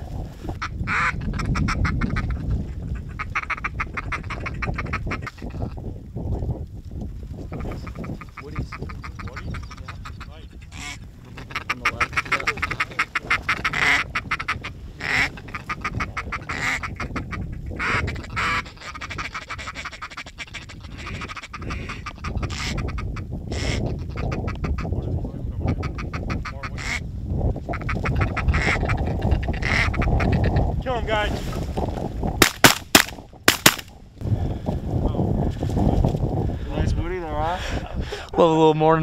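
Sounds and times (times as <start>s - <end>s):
wind rumble: 0.0s - 39.0s
ducks quacking: 0.6s - 5.8s, 7.5s - 27.0s, 27.7s - 30.7s.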